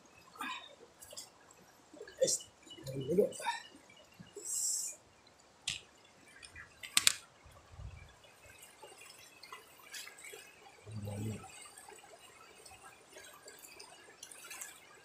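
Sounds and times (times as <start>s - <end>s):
water drips and clicks: 0.0s - 15.0s.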